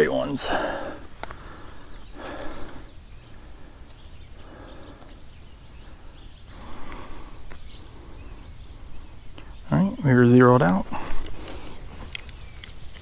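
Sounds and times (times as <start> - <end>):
insects droning: 0.0 - 13.0
faint ticks: 1.1 - 2.7, 6.5 - 7.8, 11.0 - 13.0
soft rustles: 10.9 - 13.0.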